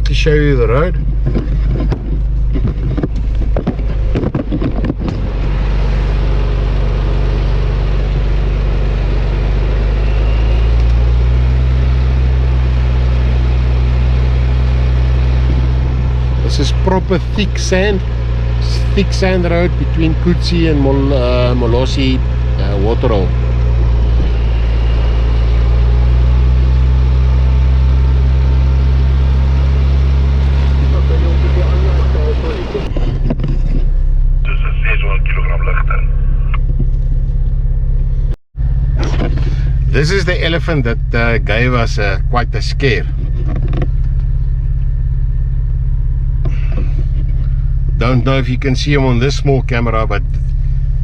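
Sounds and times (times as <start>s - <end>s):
vehicle engine driving through sand: 0.1s - 36.0s, 36.9s - 51.0s
sharp knocks and rattles: 0.9s - 5.5s, 32.9s - 34.0s, 43.1s - 44.3s.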